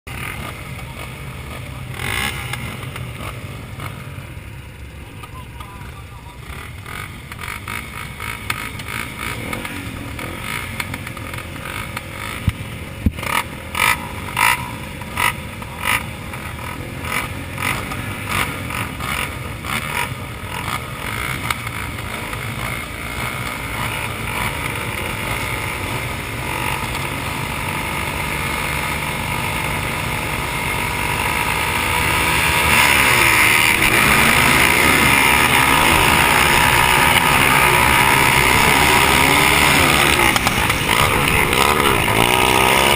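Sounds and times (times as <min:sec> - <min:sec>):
dirt bike engines running: 0:00.1 - 0:42.9.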